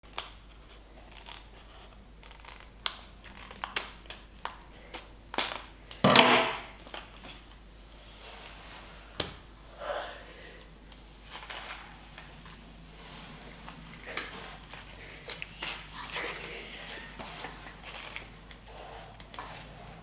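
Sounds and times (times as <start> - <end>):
crinkling tearing noise: 0.0 - 6.0, 11.2 - 19.8.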